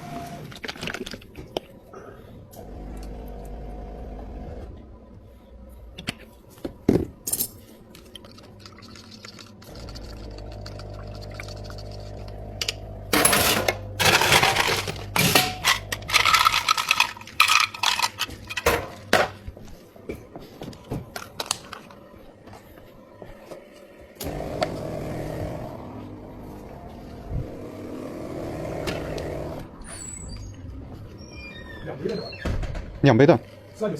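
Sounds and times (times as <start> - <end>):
cups ice and utensils clinking: 13.2 - 19.2
machine humming: 24.2 - 29.8.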